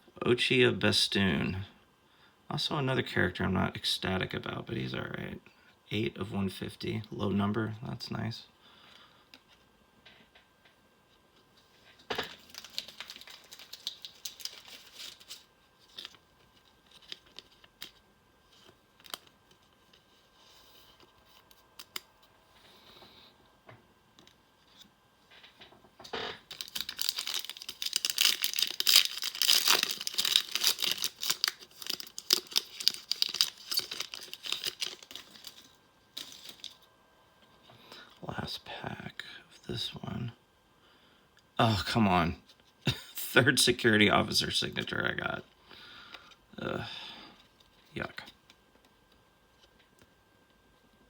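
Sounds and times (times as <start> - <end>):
cards shuffling: 12.1 - 22.2, 26.2 - 36.8
wrapper crinkling and tearing: 12.2 - 20.0, 26.2 - 36.9.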